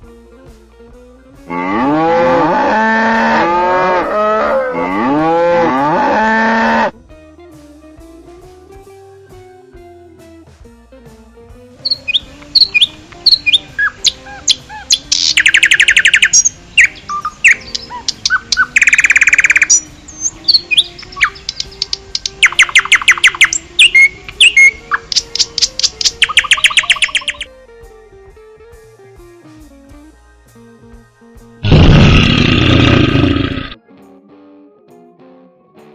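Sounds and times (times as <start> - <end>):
soft background music: 0.0 - 31.7
bird chirping and trilling: 11.8 - 27.5.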